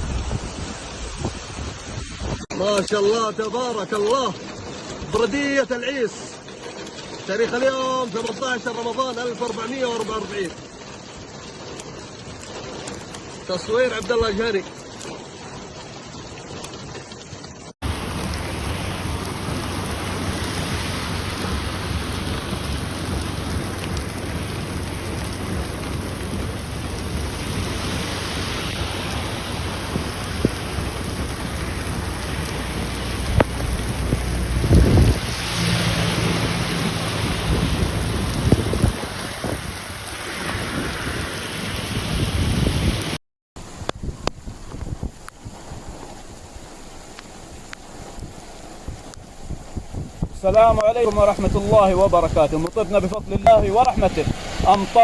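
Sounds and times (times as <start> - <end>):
heavy rain pouring: 0.0 - 55.0
low rumbles: 17.8 - 55.0.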